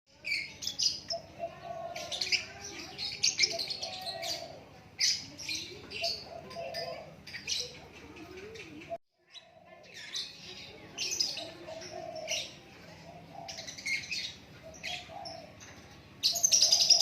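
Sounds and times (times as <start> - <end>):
songbird chirping and whistling: 13.2 - 17.0.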